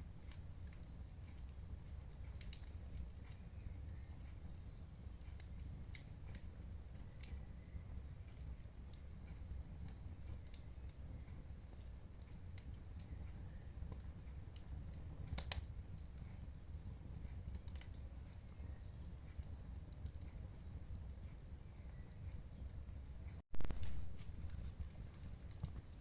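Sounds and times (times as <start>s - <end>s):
low fire rumble: 0.0s - 26.0s
wood fire crackling: 0.0s - 26.0s
sharp fire pops: 14.0s - 16.3s, 23.5s - 26.0s.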